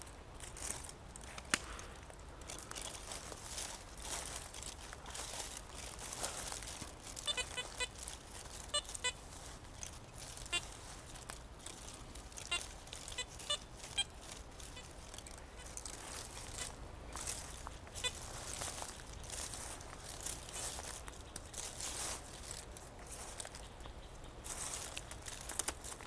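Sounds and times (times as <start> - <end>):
footsteps through vegetation: 0.0 - 26.0
metal detector beeps: 7.2 - 8.0, 11.8 - 14.9.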